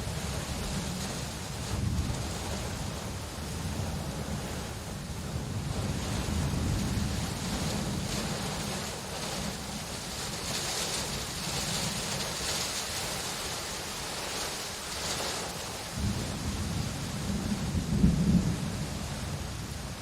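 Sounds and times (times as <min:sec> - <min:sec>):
distant thunder rumbling: 0:00.0 - 0:12.6, 0:15.0 - 0:19.8
steady rain: 0:00.0 - 0:20.0.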